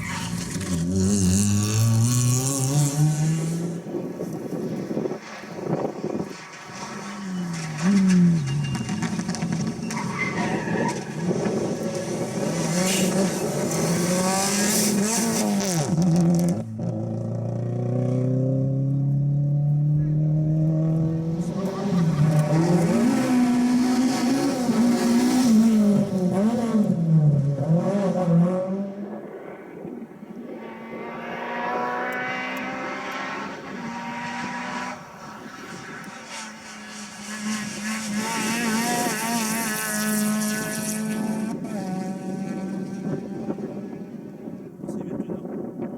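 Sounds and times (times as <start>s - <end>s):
rally car engine revving: 0.0s - 29.3s, 30.5s - 45.6s
fainter engine note climbing: 11.3s - 29.2s.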